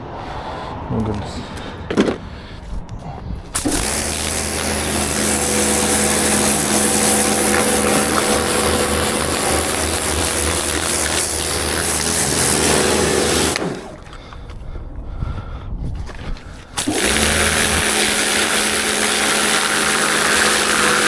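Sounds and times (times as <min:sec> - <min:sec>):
power tool running: 0:03.5 - 0:14.1, 0:16.8 - 0:21.0.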